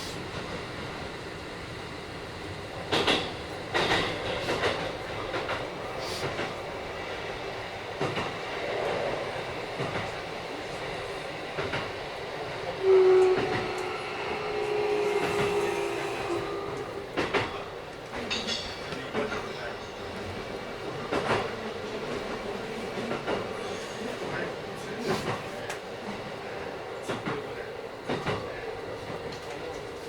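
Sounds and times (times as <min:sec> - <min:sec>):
electric train running noise: 0:00.2 - 0:23.9
loud steady tone: 0:12.8 - 0:17.0.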